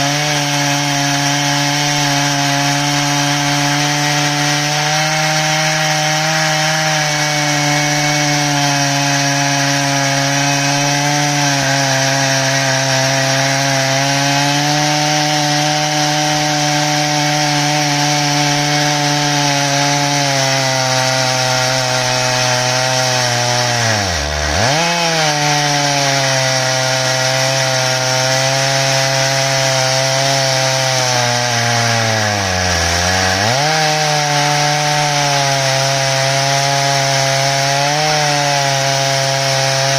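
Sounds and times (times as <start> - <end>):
chainsaw cutting through log: 0.0 - 39.9.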